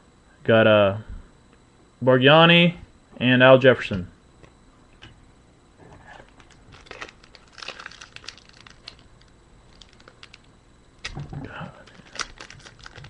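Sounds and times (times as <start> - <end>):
card packs crinkling and rustling: 6.2 - 13.0
small crackles and ticks: 6.3 - 10.5, 11.8 - 13.0.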